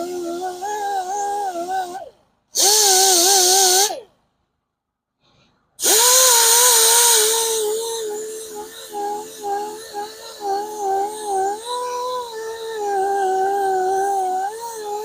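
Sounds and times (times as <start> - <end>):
hiss of grinding metal: 5.8 - 10.5.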